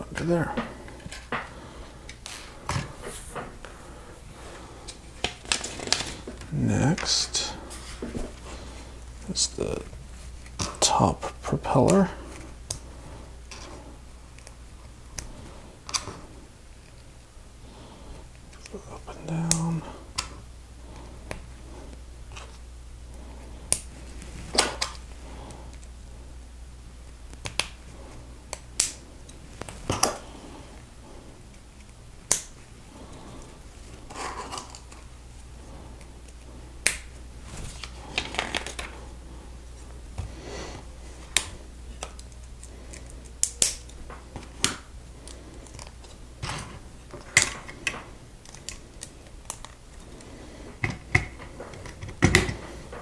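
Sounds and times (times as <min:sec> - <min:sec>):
plastic parts rubbing and rattling: 0:04.9 - 0:08.4, 0:37.4 - 0:39.1
plastic pieces clicking and snapping: 0:50.8 - 0:52.7.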